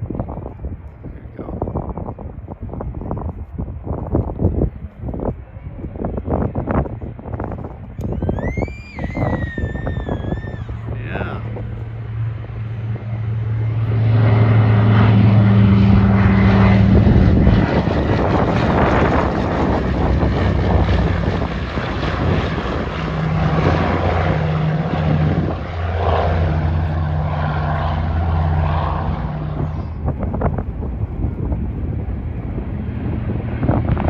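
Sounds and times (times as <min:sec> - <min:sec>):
propeller engines drone: 0:00.0 - 0:34.0.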